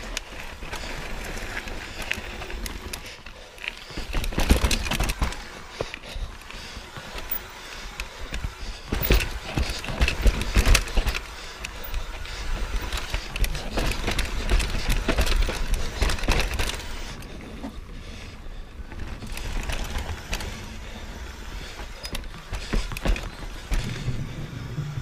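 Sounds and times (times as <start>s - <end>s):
bike knocking and rattling: 0.0s - 25.0s
bike tyres over dirt and rock: 0.0s - 25.0s
low rumble: 23.8s - 25.0s.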